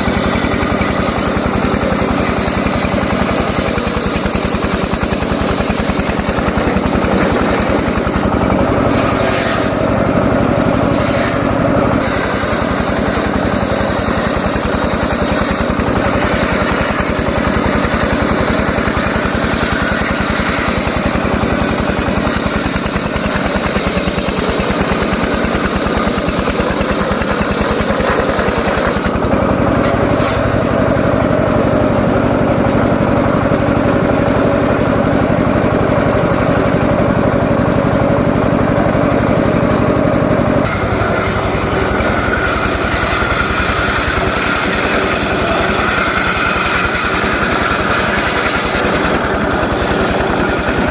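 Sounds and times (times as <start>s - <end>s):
small engine running: 0.0s - 50.9s.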